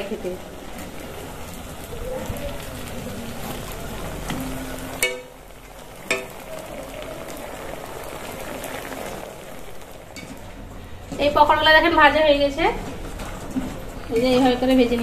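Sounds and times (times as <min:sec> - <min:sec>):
food deep-frying in hot oil: 0:00.0 - 0:15.0
metal spatula clinking against pan: 0:05.0 - 0:05.4.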